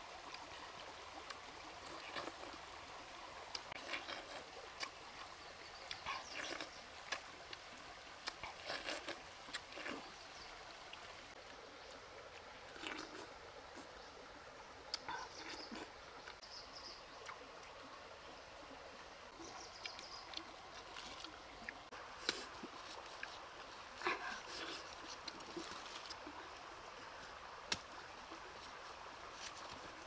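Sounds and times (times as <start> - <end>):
stream trickling: 0.0 - 30.0.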